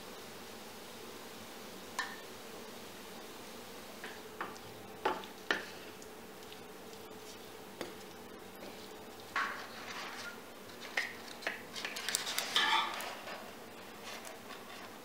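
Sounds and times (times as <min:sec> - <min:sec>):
dishes and cutlery clinking: 0:09.3 - 0:13.5.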